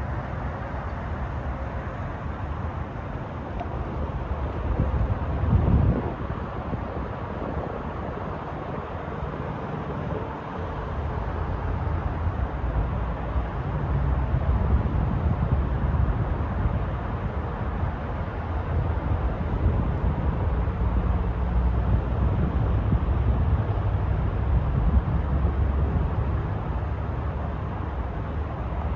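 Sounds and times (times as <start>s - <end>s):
truck engine running: 0.0s - 5.4s.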